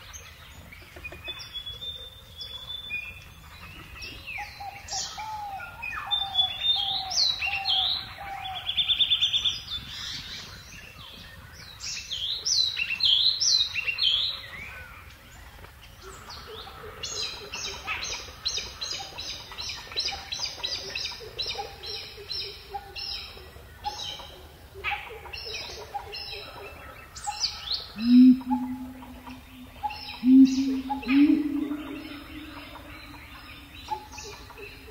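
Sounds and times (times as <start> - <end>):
birds chirping and whistling: 25.4 - 34.9
loud low bird call: 27.9 - 34.9.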